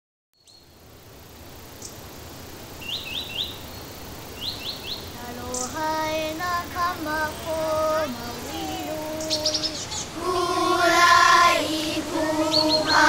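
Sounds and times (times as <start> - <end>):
bird chirping: 0.4 - 0.8, 2.8 - 10.2, 10.8 - 13.0
person singing held notes: 7.1 - 11.0.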